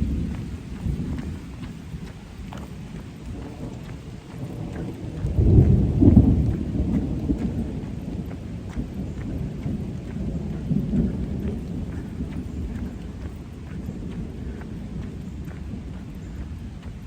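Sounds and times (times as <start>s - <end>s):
rain: 0.0s - 17.0s
thunder rumbling: 0.0s - 17.0s.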